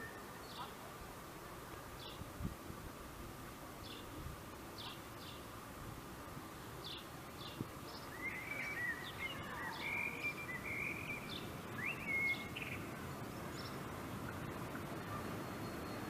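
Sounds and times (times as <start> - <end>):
small birds chirping: 0.0 - 0.8, 1.9 - 2.3, 3.8 - 5.6, 6.6 - 14.0.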